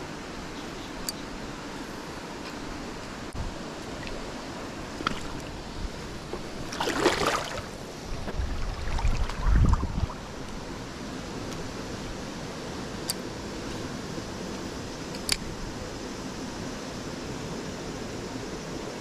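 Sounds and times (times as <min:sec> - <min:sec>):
mountain stream rushing: 0:03.6 - 0:14.4.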